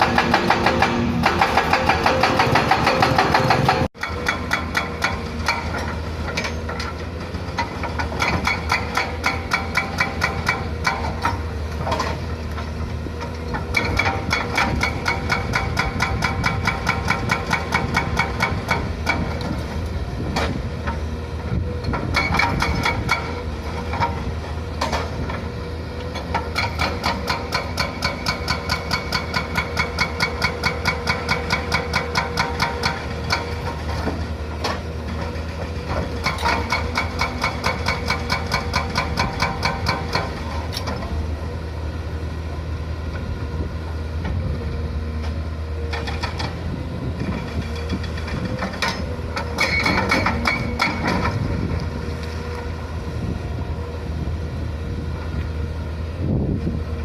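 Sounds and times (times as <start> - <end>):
hydraulic breaker hammering: 0.0 - 6.9, 13.6 - 19.4, 21.9 - 24.2, 26.2 - 41.0, 47.3 - 51.5
diesel engine running: 0.0 - 57.0.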